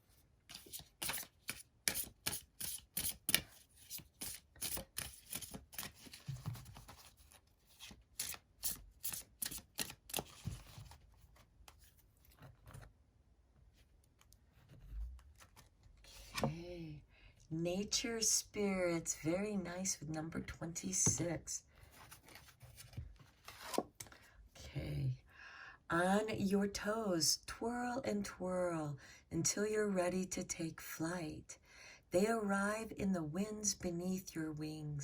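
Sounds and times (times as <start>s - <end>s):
cards being shuffled: 0.5s - 12.9s, 22.0s - 24.0s.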